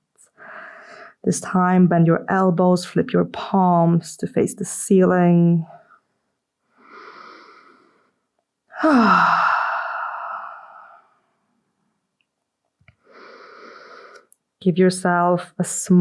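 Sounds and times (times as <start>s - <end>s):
woman breathing: 0.3s - 1.2s, 6.6s - 11.4s, 12.9s - 14.3s.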